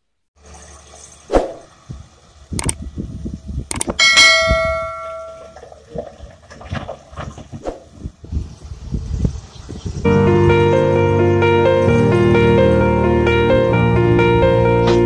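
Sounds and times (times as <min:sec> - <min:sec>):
sharp metallic knocks and clangs: 0:03.7 - 0:05.6
bell-like metallic ring: 0:04.0 - 0:05.6.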